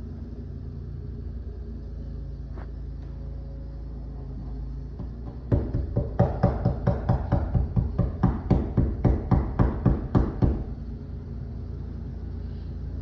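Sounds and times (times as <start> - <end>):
rapid sharp knocks: 5.0 - 10.7.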